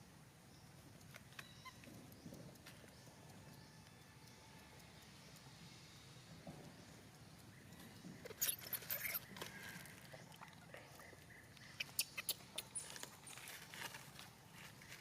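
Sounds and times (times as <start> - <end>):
faint high squeaks: 8.2 - 9.9
monkeys handling things: 8.2 - 10.6.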